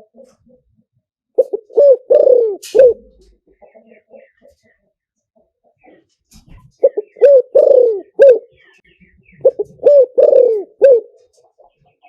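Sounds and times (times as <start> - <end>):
dove cooing: 1.4 - 3.3, 6.7 - 8.6, 9.4 - 11.4.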